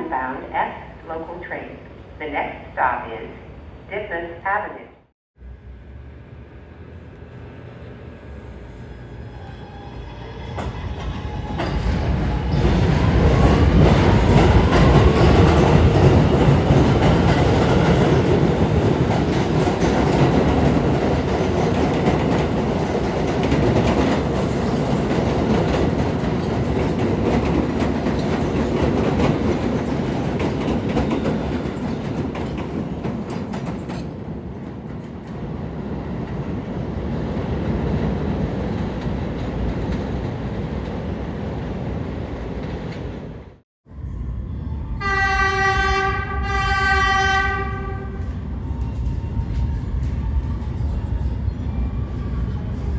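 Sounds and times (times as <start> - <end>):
subway train rumbling on rails: 5.4 - 52.9
wheels clickety-clack: 12.7 - 34.2.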